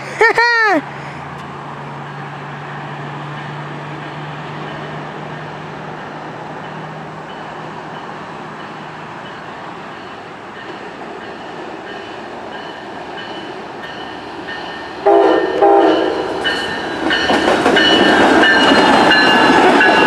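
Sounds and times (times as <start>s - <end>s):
train rumbling: 0.0s - 20.0s
train horn blast: 15.0s - 16.4s.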